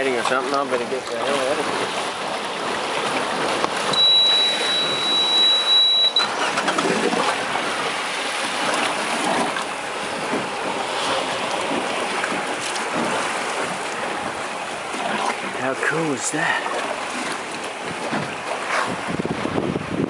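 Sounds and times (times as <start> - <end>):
sea and wind rushing wash: 0.0 - 20.0
high-pitched electronic beep: 4.0 - 6.3.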